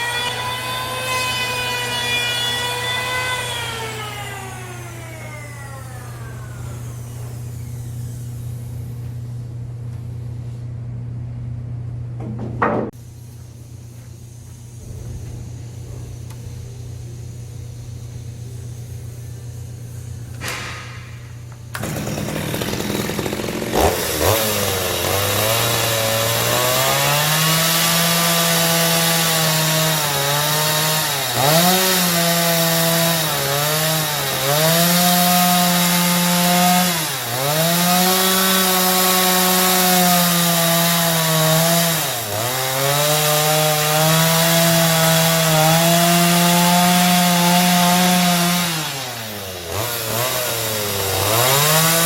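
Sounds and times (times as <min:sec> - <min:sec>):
chainsaw cutting wood: 0:00.0 - 0:08.1, 0:20.4 - 0:52.0.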